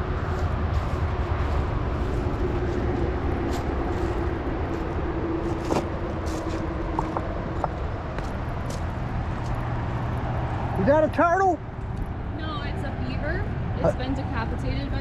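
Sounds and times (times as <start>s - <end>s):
motor running with low rumble: 0.0s - 15.0s.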